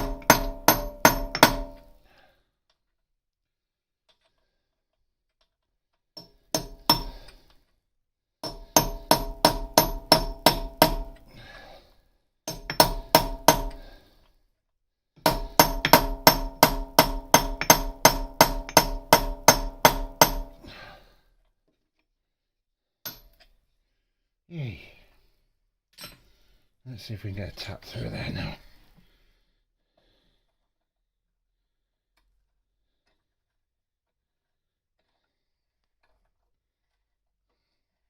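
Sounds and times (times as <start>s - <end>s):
hammer striking steel punch: 0.0s - 1.9s, 6.2s - 7.3s, 8.4s - 11.3s, 12.5s - 13.9s, 15.2s - 20.6s.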